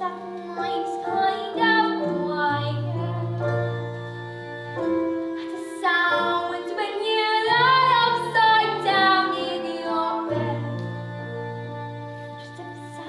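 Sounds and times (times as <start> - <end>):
child singing: 0.0 - 11.4.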